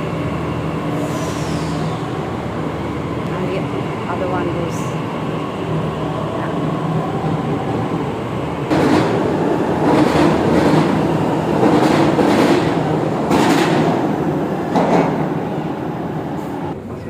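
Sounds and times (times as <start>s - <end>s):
train rumble: 0.0s - 17.0s
train wheel clacks: 8.7s - 15.4s.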